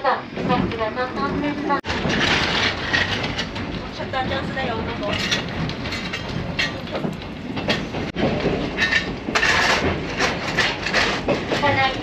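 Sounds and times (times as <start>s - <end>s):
railcar rumbling on track: 0.0s - 12.0s
coal scraping and rattling into stove: 8.8s - 11.9s.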